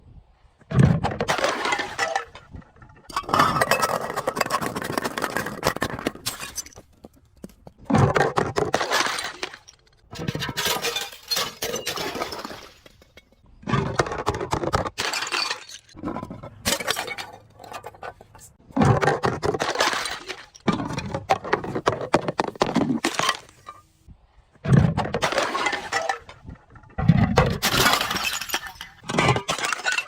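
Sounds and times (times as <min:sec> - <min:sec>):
glass bottle crushing and shattering: 0:01.3 - 0:06.8, 0:08.0 - 0:13.4, 0:14.8 - 0:18.1, 0:18.8 - 0:23.8, 0:25.2 - 0:30.0.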